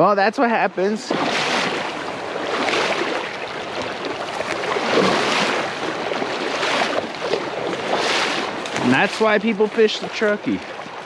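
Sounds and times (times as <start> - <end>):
river water rushing: 0.4 - 11.0.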